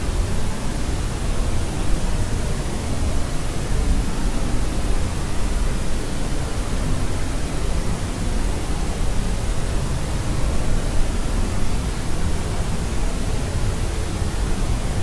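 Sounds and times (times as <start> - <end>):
steady white noise hiss: 0.0 - 15.0.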